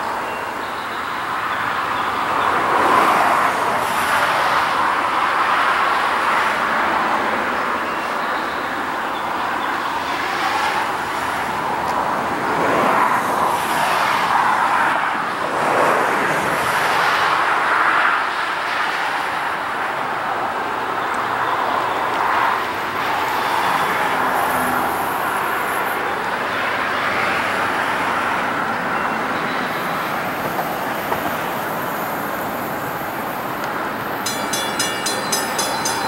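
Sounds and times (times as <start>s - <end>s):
freight train rumbling: 29.6s - 36.0s.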